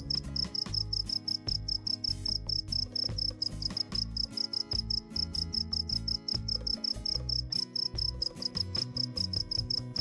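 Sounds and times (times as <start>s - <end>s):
background music: 0.0s - 10.0s
cricket-like chirping: 0.0s - 10.0s.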